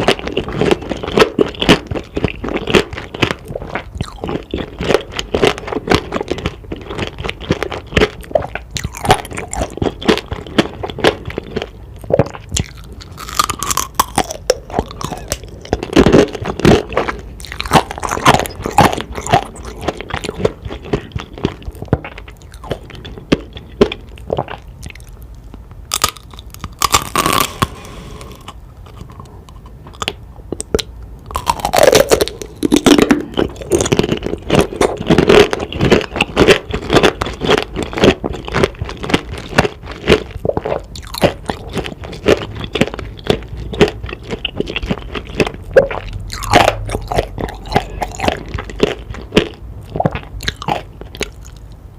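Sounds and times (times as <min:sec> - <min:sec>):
crunching and chewing candy: 0:00.0 - 0:51.9.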